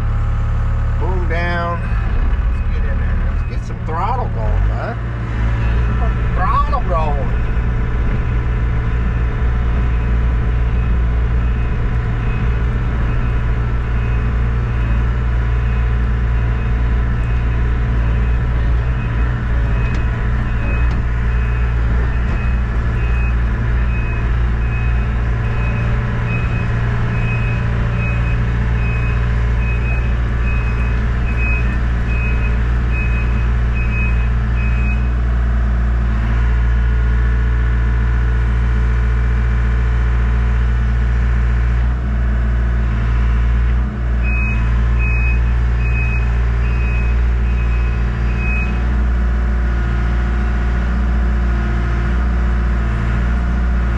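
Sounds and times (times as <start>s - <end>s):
excavator diesel engine running: 0.0s - 53.9s
travel alarm beeping: 5.5s - 35.2s, 44.2s - 48.9s.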